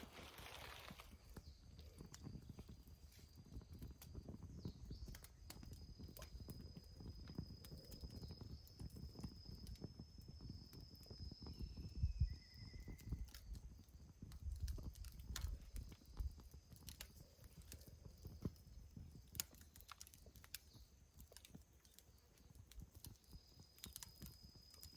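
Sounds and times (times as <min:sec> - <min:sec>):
wood fire crackling and popping: 0:00.0 - 0:24.9.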